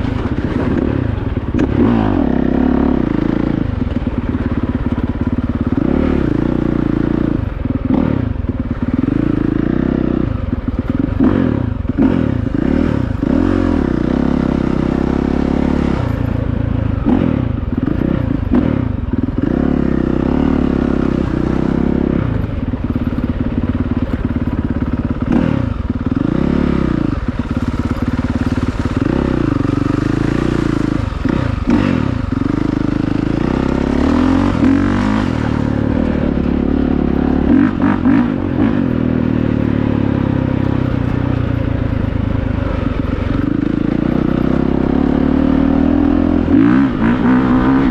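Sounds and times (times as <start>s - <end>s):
dirt bike engine revving: 0.0s - 47.9s
bike clattering over rough ground: 21.1s - 26.3s.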